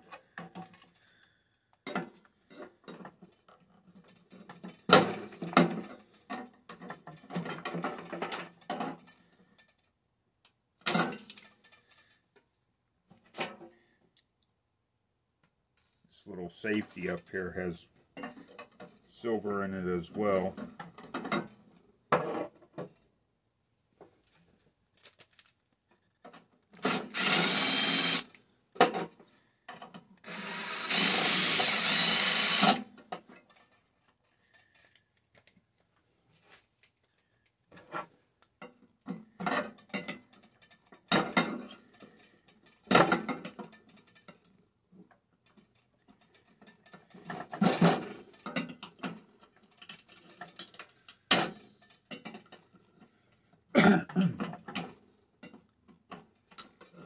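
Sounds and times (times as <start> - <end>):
metal parts clicking and knocking: 10.8 - 12.2, 45.4 - 52.8
handheld power tool running: 26.8 - 28.4, 30.2 - 32.9.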